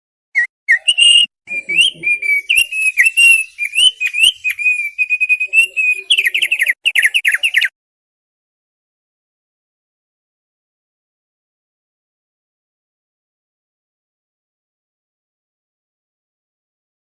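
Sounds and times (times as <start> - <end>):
bird singing chirps and whistles: 0.4 - 7.7.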